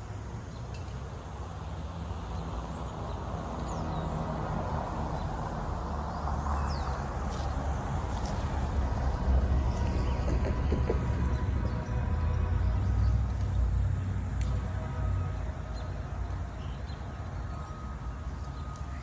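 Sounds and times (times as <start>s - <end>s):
locomotive engine rumble: 7.0s - 19.0s.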